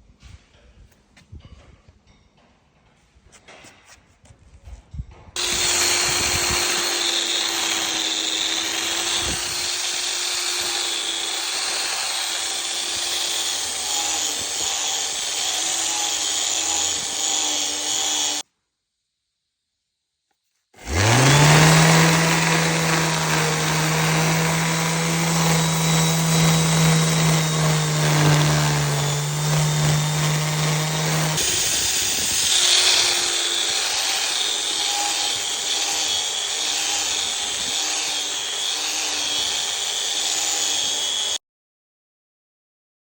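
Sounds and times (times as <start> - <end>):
power tool motor humming: 5.4 - 18.4, 20.8 - 41.4.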